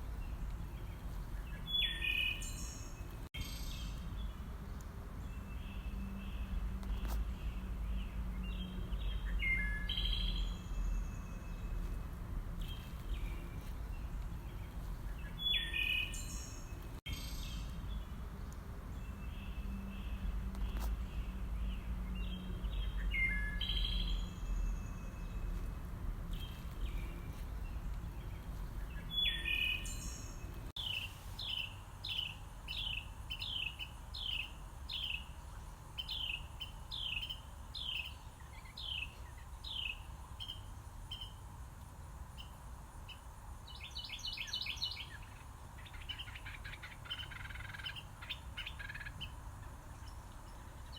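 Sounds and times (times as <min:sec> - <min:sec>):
songbirds chirping: 0:00.0 - 0:50.9
low rumble: 0:03.1 - 0:15.9, 0:16.6 - 0:30.7.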